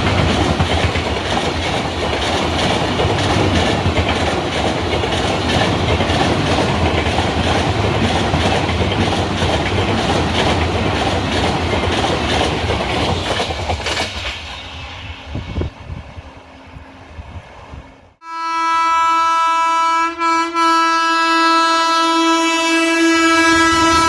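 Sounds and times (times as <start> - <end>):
train wheels clattering over rails: 0.0 - 15.7.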